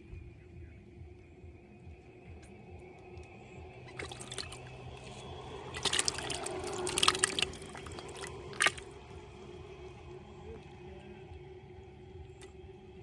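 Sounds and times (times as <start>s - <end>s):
water splashing and dripping: 3.8s - 9.1s.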